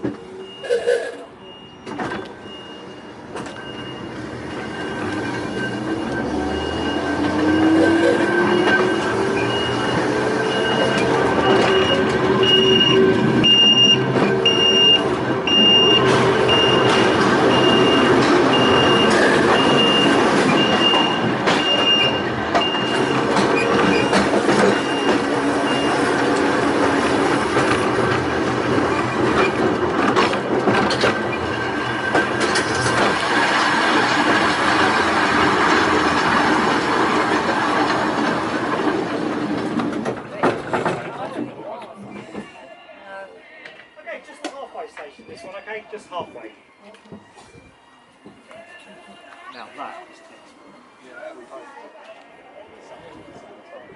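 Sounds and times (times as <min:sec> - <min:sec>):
railway car rumbling: 0:00.0 - 0:42.9.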